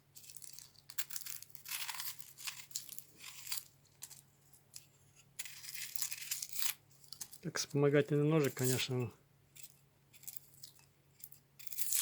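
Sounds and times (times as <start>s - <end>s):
knife cutting onion crunching: 11.6s - 12.0s.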